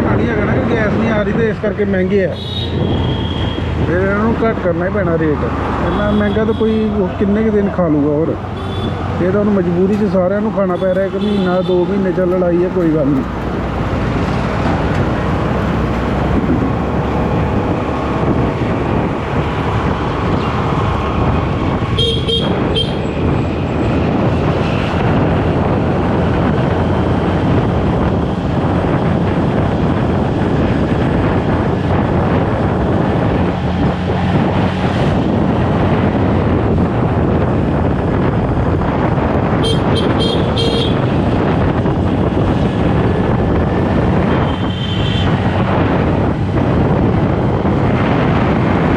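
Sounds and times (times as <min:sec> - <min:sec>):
road and wind noise: 0:00.0 - 0:48.9
motorcycle engine: 0:08.3 - 0:19.7
vehicle horn honking: 0:08.5 - 0:09.0, 0:22.0 - 0:23.1, 0:39.6 - 0:41.0, 0:44.4 - 0:45.3.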